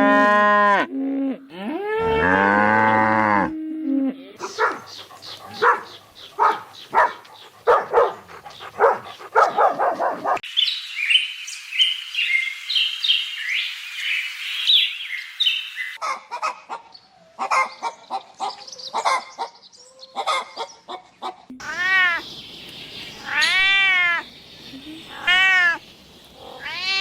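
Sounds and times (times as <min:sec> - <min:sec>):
small birds chirping: 0:04.4 - 0:16.0, 0:21.6 - 0:27.0.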